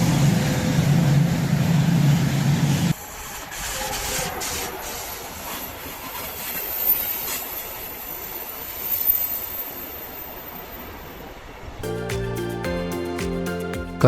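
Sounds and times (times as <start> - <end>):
train wheel and track noise: 0.0 - 11.8
faint wheel squeal: 3.2 - 10.6.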